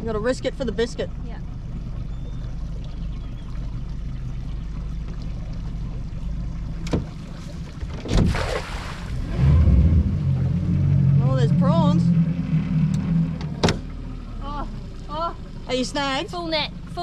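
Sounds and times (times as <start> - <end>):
outboard motor idling: 0.0 - 17.0
net splashing into water: 7.1 - 9.4.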